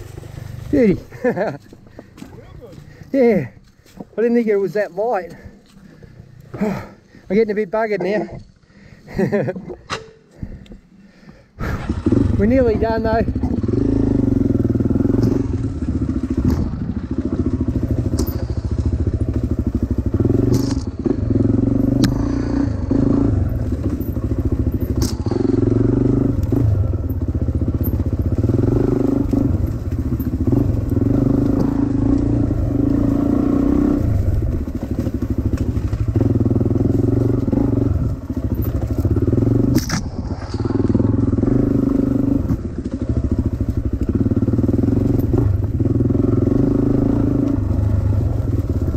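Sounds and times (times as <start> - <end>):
dirt bike engine revving: 11.6 - 48.9
bike knocking and clattering: 15.0 - 22.2.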